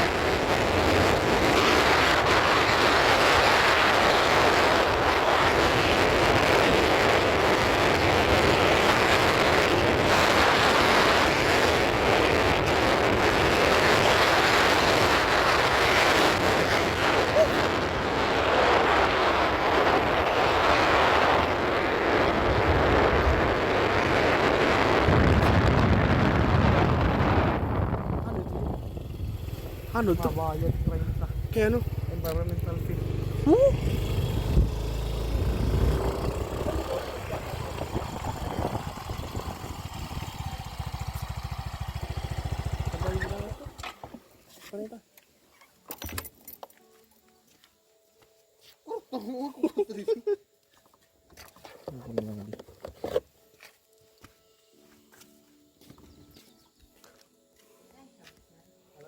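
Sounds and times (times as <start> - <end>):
wind rushing over microphone: 0.0 - 43.8
vehicle noise: 0.0 - 44.3.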